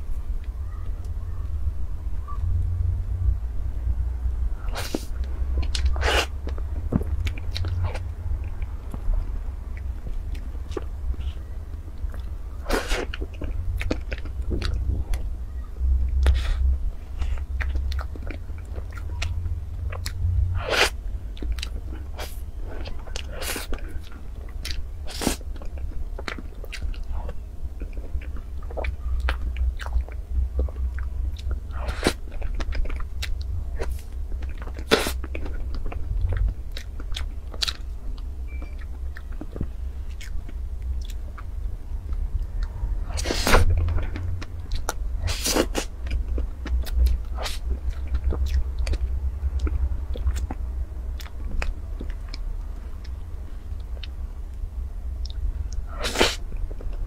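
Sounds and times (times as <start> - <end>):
steady low hum: 0.0 - 57.0
chewing and lip smacks: 16.0 - 53.2, 55.2 - 57.0.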